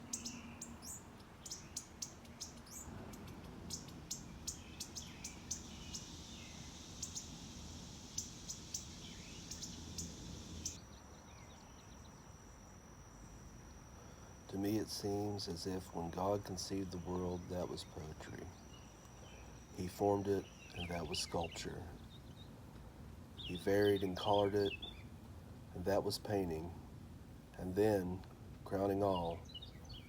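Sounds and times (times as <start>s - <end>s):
birds chirping: 0.0s - 25.2s, 27.6s - 30.0s
thin steady high tone: 1.5s - 22.2s
high hiss: 3.1s - 10.8s, 13.0s - 21.6s.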